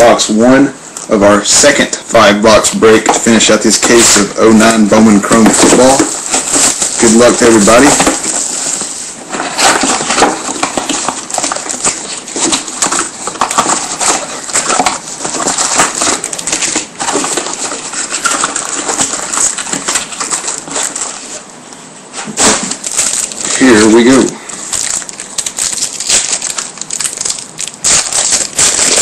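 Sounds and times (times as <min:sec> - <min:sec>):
packaging crinkling and tearing: 0:02.8 - 0:21.4, 0:22.2 - 0:29.0.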